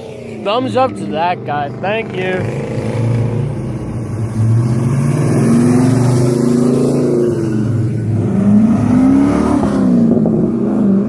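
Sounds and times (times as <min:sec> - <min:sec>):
car engine revving hard: 0:04.2 - 0:11.0.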